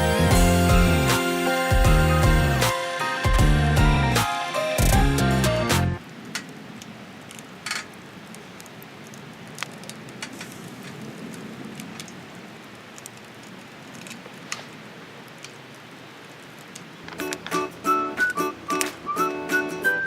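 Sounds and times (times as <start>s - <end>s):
background music: 0.0s - 6.0s, 17.2s - 20.0s
campfire crackling: 6.0s - 19.7s.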